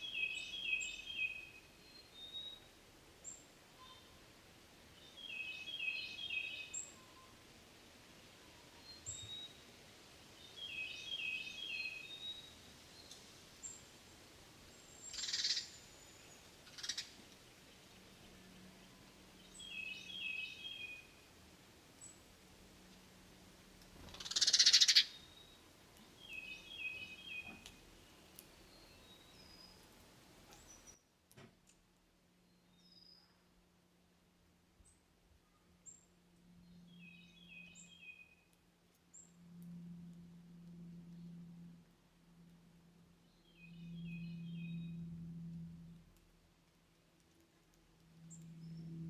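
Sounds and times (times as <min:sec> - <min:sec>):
songbird trilling song: 0:00.0 - 0:04.1, 0:05.0 - 0:07.4, 0:10.4 - 0:13.8, 0:14.8 - 0:17.2, 0:19.4 - 0:21.1, 0:24.2 - 0:25.6, 0:26.2 - 0:29.9, 0:36.6 - 0:38.4, 0:43.3 - 0:45.1.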